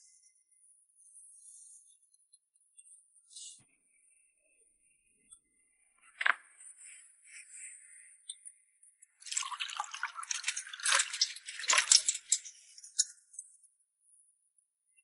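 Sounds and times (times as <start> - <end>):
liquid drips and splashes: 9.2 - 13.5.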